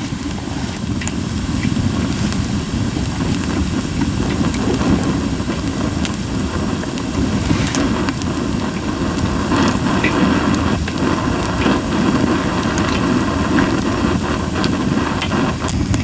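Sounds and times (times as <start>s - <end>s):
campfire popping and crackling: 0.0s - 16.0s
low fire rumble: 0.0s - 16.0s.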